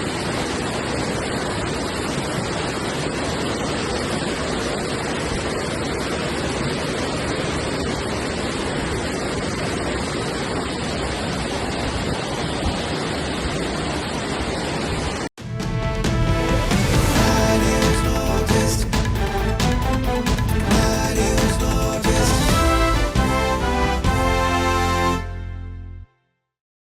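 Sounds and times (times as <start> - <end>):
rushing floodwater: 0.0 - 15.3.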